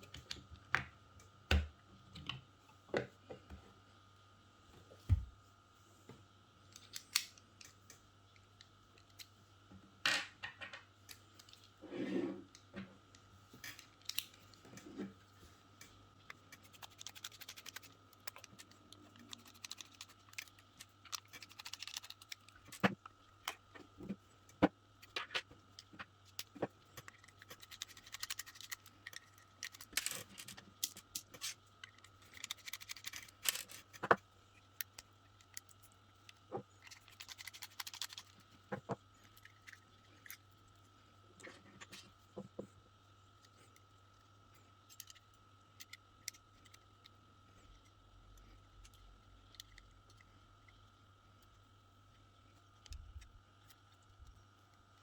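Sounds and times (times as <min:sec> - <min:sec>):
plastic parts clicking: 0:16.3 - 0:23.6, 0:24.5 - 0:34.2, 0:34.8 - 0:40.4.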